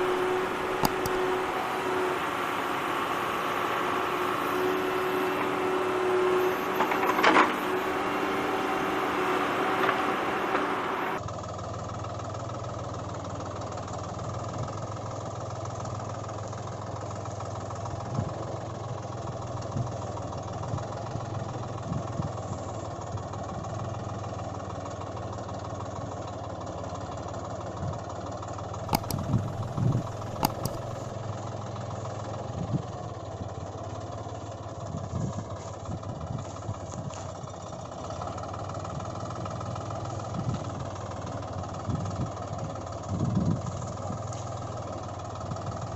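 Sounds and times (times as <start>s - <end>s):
toy tractor engine idling: 0.0s - 45.9s
sharp clicks and knocks: 0.8s - 1.2s, 28.9s - 30.9s.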